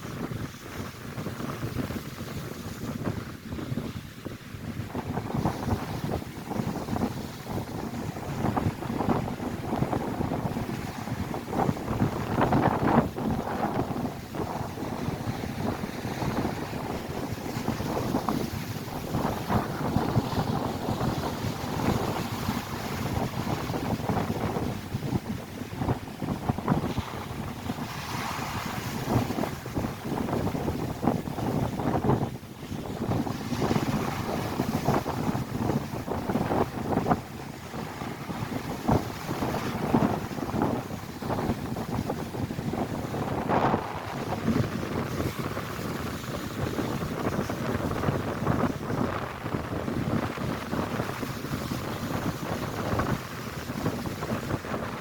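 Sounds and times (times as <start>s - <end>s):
gusty wind buffeting microphone: 0.0s - 55.0s
waves breaking on shore: 0.0s - 55.0s.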